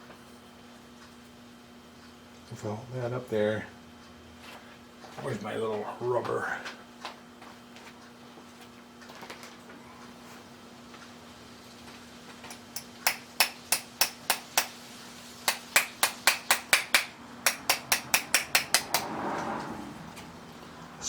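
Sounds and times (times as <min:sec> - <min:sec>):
mallet tapping sheet metal: 0:12.5 - 0:14.8, 0:15.5 - 0:19.1.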